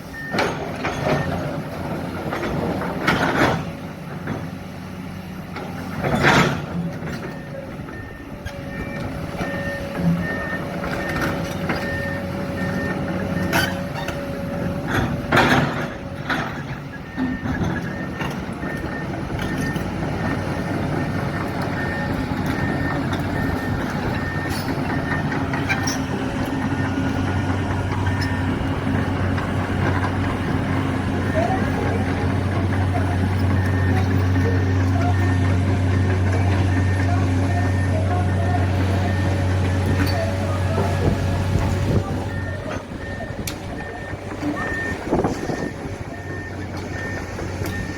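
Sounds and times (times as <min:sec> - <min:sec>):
reversing alarm beeping: 0:00.0 - 0:01.4, 0:06.2 - 0:47.9
heavy machinery engines running: 0:00.0 - 0:47.9.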